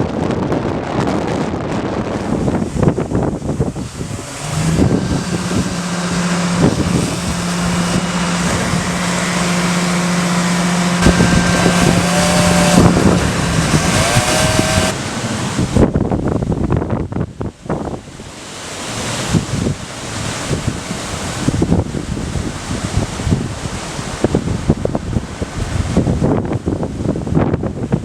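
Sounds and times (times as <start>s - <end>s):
strong wind on microphone: 0.0s - 28.0s
steady low hum: 2.2s - 15.8s.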